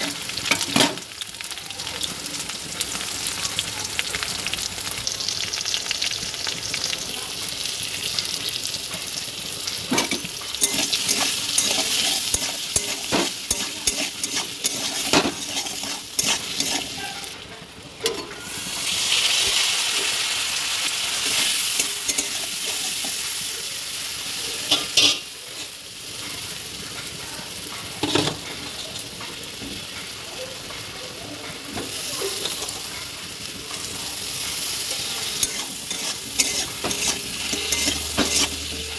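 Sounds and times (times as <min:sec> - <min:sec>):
potatoes sizzling in oil: 0:00.0 - 0:38.9
spoon stirring and scraping pan: 0:09.0 - 0:17.4, 0:18.0 - 0:23.5, 0:31.7 - 0:38.9
chillies dropping into hot oil: 0:09.8 - 0:17.0, 0:35.4 - 0:38.9.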